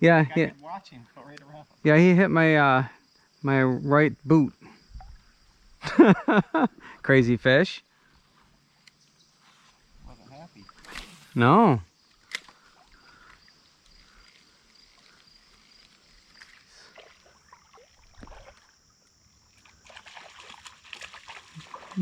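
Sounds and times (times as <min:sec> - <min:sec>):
river water sloshing: 0:12.2 - 0:22.0.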